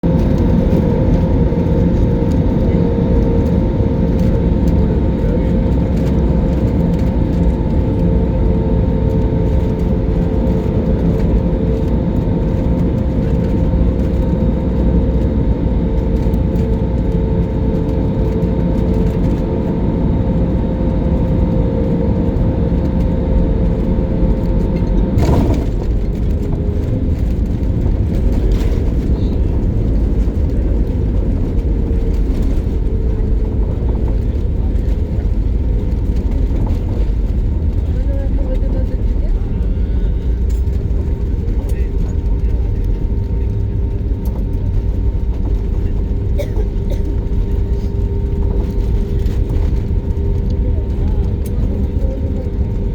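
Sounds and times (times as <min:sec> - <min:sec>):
airliner engines droning: 0:00.0 - 0:52.9
thud: 0:25.2 - 0:26.1.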